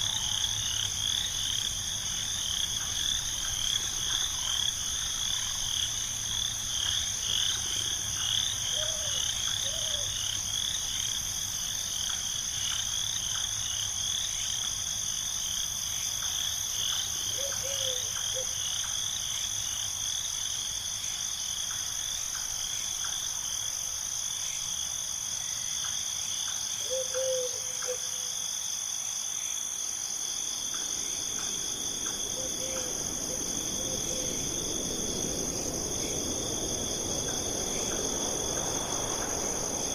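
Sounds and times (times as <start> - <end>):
frogs chirping chorus: 0.0 - 23.4, 24.1 - 39.9
high insect drone: 0.0 - 39.9
soft hiss: 29.9 - 39.9.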